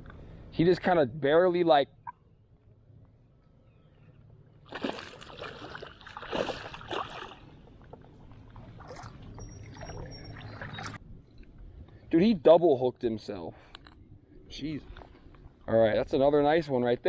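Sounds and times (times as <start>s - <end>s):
water splashing and sloshing: 4.6s - 11.6s.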